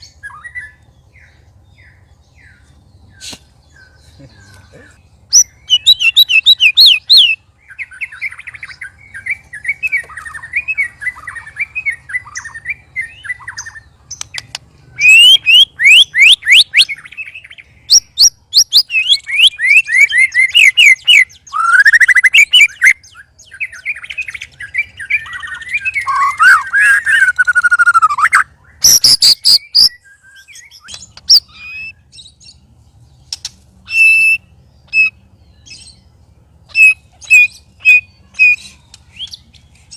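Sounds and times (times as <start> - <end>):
songbird singing varied song: 0.0 - 39.9.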